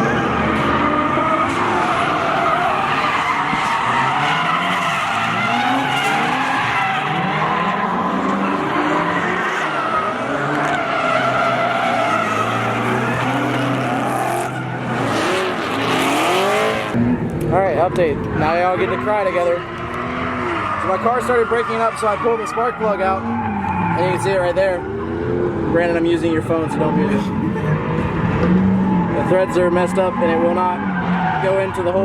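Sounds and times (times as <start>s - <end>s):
tyre squeal: 0.0s - 16.4s
car engines revving: 0.0s - 32.0s.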